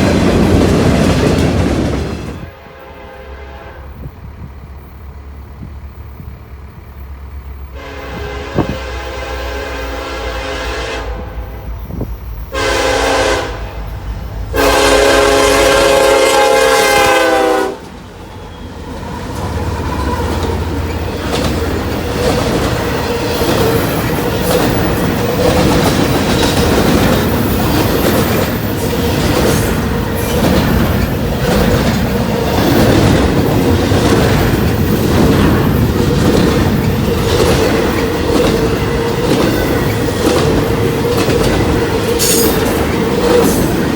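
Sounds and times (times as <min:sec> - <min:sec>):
wheels clacking over rail joints: 0:00.0 - 0:02.5, 0:17.8 - 0:43.9
train rumbling past: 0:00.0 - 0:43.9
locomotive air horn: 0:02.4 - 0:04.1, 0:07.7 - 0:17.9.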